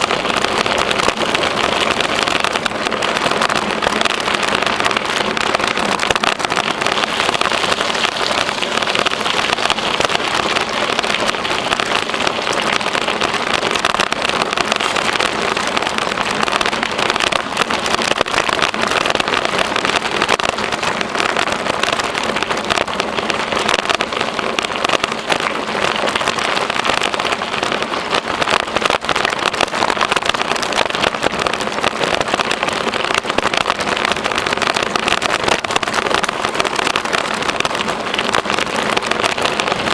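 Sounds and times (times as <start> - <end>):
bicycle tyres rolling on trail: 0.0 - 39.9.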